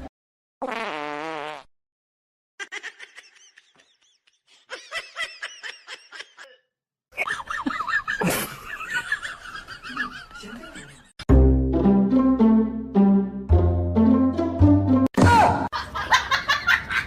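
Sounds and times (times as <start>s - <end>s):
person laughing and snickering: 7.2s - 9.2s
background noise: 7.2s - 11.2s, 15.2s - 17.0s
loud music: 11.3s - 15.2s.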